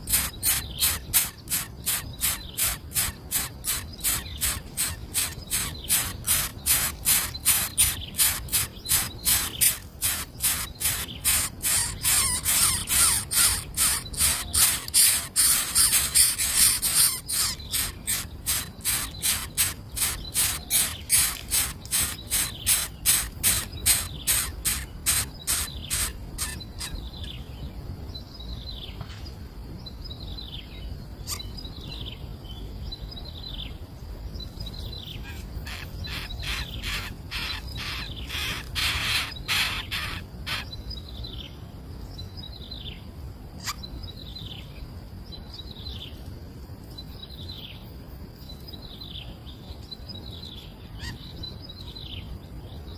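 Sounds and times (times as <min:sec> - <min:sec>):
high bird chirps: 0:00.0 - 0:27.4, 0:35.2 - 0:40.8
down-slurred bird call: 0:00.1 - 0:27.0, 0:35.2 - 0:40.7.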